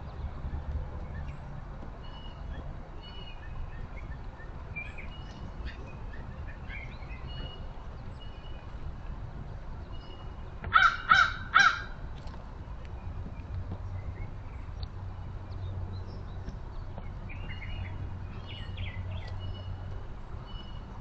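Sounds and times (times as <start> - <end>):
songbirds chirping and whistling: 0.0 - 21.0
crow cawing: 10.7 - 12.0.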